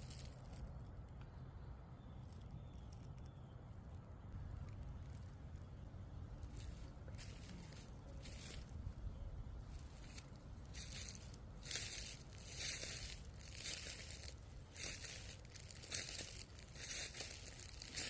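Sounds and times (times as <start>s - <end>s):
footsteps crunching on dry ground: 0.0s - 0.7s, 5.0s - 18.0s.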